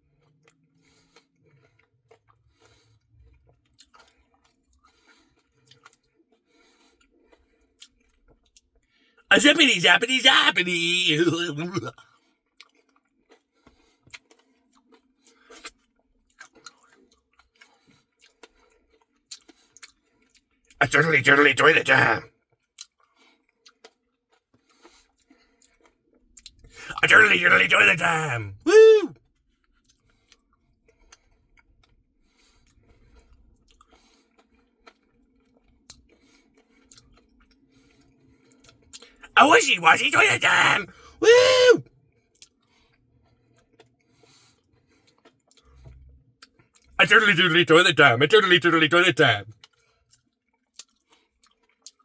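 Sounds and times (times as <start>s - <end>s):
chewing and mouth clicks: 3.8s - 4.1s.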